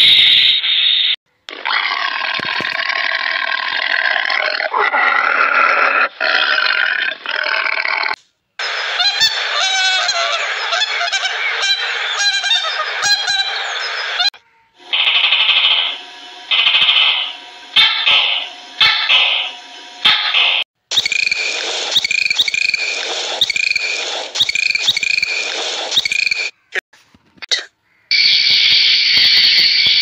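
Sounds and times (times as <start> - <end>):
repeating high-pitched sound: 14.8 - 26.5.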